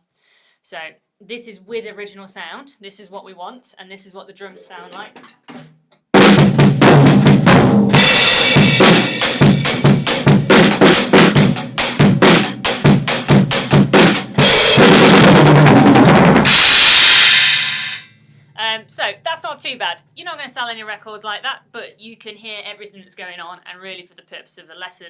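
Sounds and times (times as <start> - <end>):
drum kit groove: 4.6 - 18.1
cymbals ringing: 8.0 - 10.3, 16.5 - 18.1.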